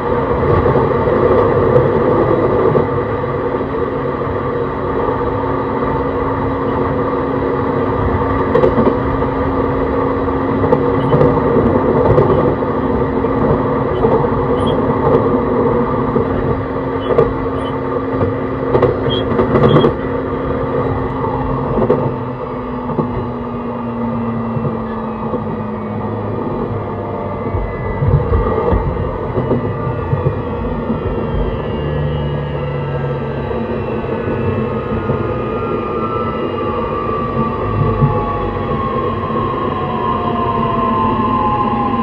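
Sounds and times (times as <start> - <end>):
train wheels rumbling on rail: 0.0 - 42.0
track clicks: 16.1 - 20.0.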